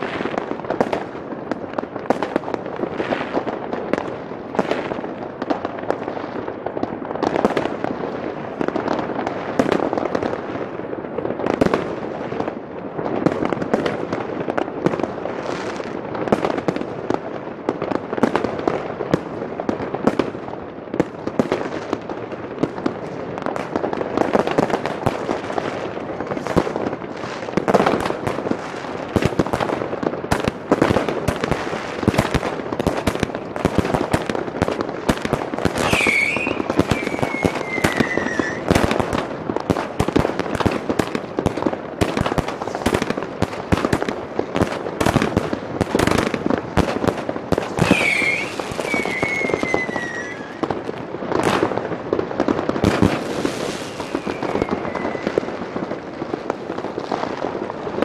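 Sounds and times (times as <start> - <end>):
firecrackers banging and crackling: 0.0 - 58.0
firework falling whistle: 35.7 - 38.8, 47.7 - 50.7, 53.1 - 55.6.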